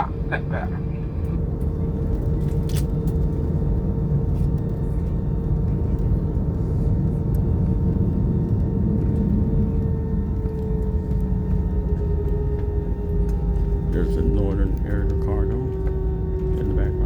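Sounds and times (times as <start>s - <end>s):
aircraft cabin engine rumble: 0.0s - 17.0s
steady hum: 0.0s - 17.0s.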